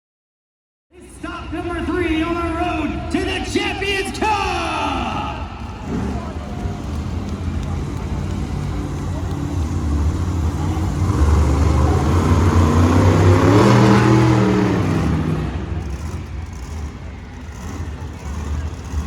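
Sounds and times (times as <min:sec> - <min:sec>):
truck engine revving hard: 0:05.5 - 0:19.0.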